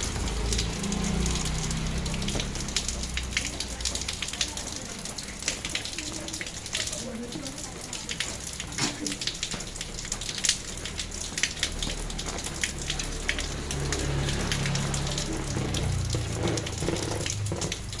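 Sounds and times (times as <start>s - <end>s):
rain on paved road: 0.0s - 18.0s.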